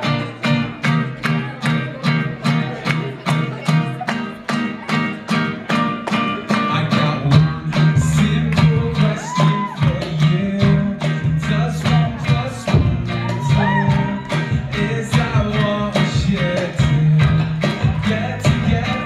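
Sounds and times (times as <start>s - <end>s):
acoustic guitar strumming: 0.0s - 19.0s
person singing: 0.0s - 19.0s
bass line: 6.6s - 19.0s.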